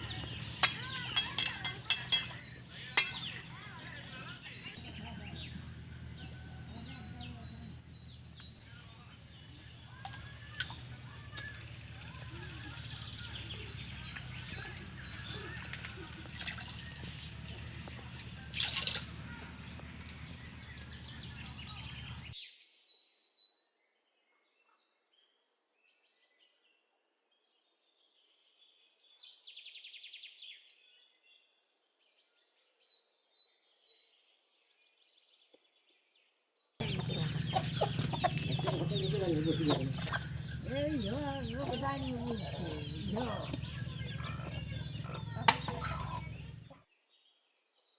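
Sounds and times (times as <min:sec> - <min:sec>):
small birds chirping: 0:00.0 - 0:22.4, 0:36.8 - 0:46.8.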